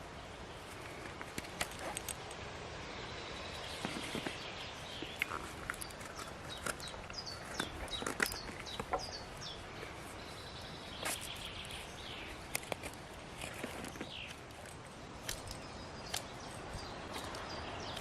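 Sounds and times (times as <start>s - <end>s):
knife carving wood: 0.8s - 2.5s, 3.6s - 10.2s, 10.9s - 18.0s
bird chirps: 2.9s - 12.5s.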